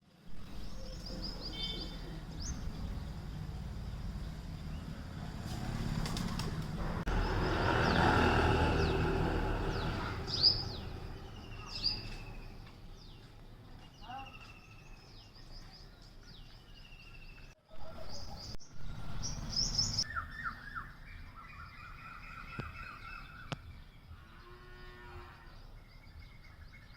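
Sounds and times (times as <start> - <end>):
small birds chirping: 0.4 - 26.9.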